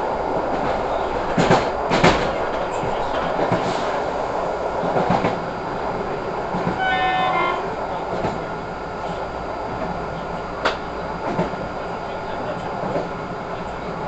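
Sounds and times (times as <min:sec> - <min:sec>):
train wheels rumbling on track: 0:00.0 - 0:14.0
train horn blast: 0:06.8 - 0:07.8.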